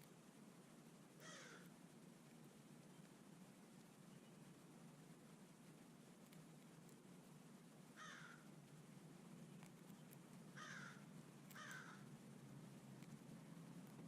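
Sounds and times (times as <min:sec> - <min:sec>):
crow cawing: 0:01.2 - 0:01.7, 0:08.0 - 0:08.5, 0:10.6 - 0:12.1.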